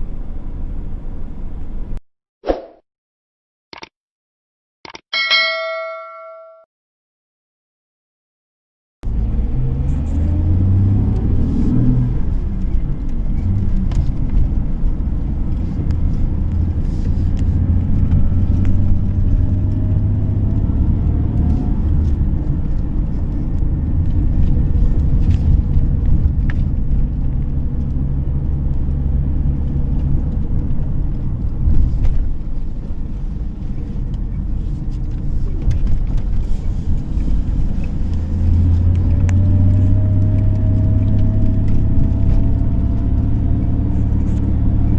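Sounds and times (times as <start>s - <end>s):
road rumble: 0.0s - 2.0s, 9.0s - 44.9s
car engine accelerating: 9.0s - 44.9s.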